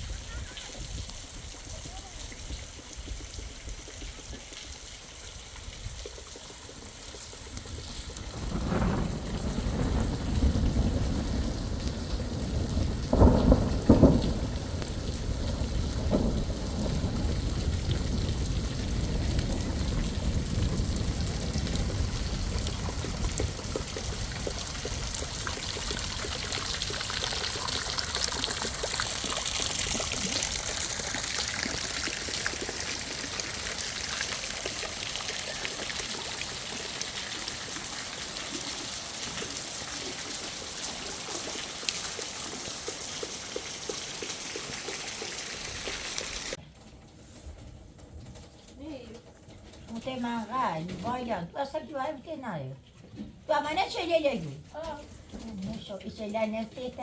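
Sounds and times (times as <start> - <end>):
steady rain falling: 0.0 - 52.5, 53.4 - 57.0
deep thunder rumbling: 7.6 - 35.2.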